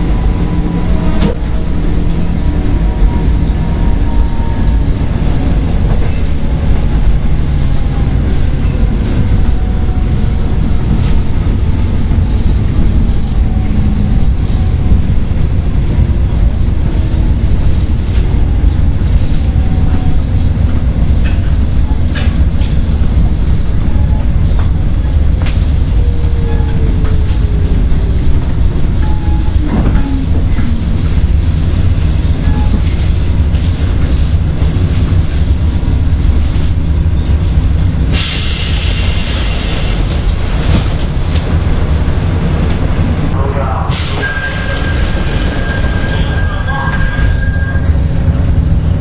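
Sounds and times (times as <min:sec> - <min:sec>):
rail-joint clicks: 0:00.0 - 0:43.0, 0:43.9 - 0:48.9
train wheels rumbling on rail: 0:00.0 - 0:49.0.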